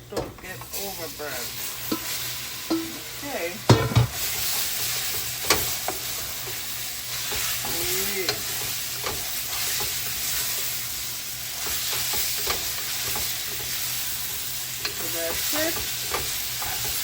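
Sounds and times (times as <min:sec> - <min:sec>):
curry sizzling in hot oil: 0:00.4 - 0:17.0
spoon stirring and clicking on pot: 0:11.6 - 0:17.0.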